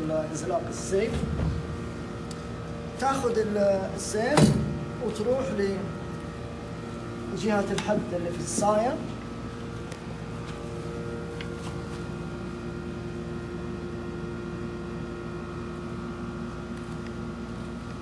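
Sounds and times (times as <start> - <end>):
machine hum with held tones: 0.0 - 18.0
faint handling clicks and taps: 7.6 - 10.6.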